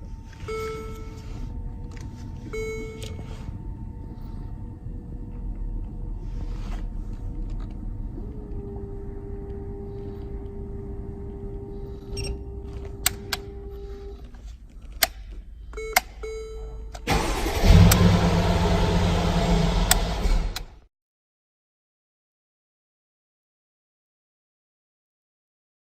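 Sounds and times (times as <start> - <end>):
car engine starting and running: 0.0 - 20.8
steady whine: 0.0 - 20.8.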